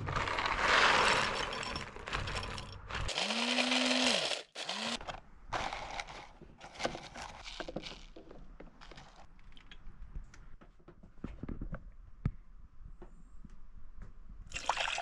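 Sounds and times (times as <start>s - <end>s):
scraping and clatter of handling: 0.0s - 3.1s
coffee grinder grinding beans: 0.0s - 9.3s.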